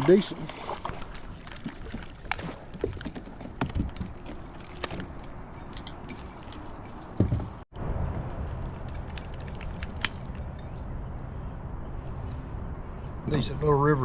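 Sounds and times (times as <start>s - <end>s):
fishing lure blades jingling: 0.3s - 7.7s, 8.8s - 10.8s, 12.2s - 13.8s.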